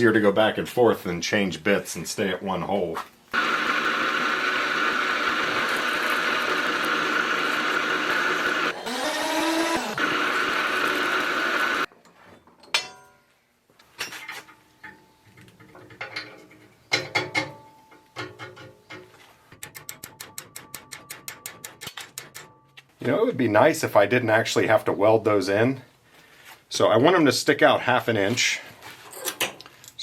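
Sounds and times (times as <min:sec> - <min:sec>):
milling machine whine: 0:03.4 - 0:11.9.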